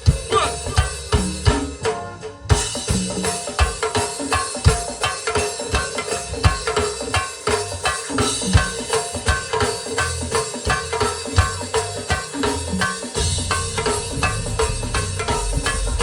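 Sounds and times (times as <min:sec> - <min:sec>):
drum kit and percussion beat: 0:00.0 - 0:16.0
live band instrumental: 0:00.0 - 0:16.0.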